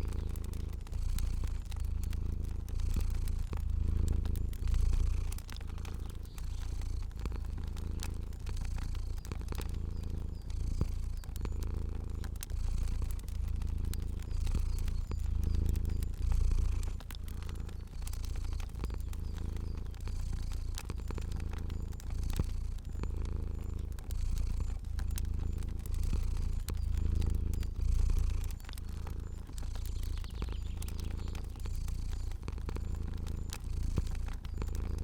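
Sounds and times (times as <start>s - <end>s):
cat purring: 0.0s - 35.0s
fire crackling and popping: 0.0s - 35.0s.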